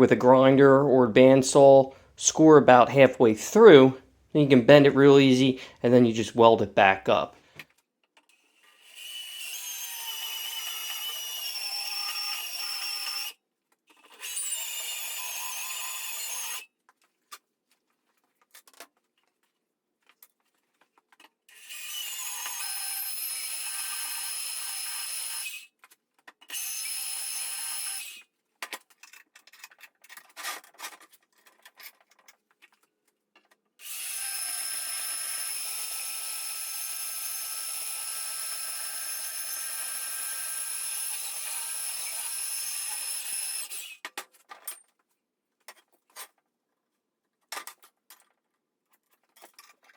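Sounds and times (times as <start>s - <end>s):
power tool cutting steel: 8.6s - 13.4s, 14.0s - 16.6s, 21.5s - 25.7s, 26.5s - 28.2s, 33.8s - 44.0s.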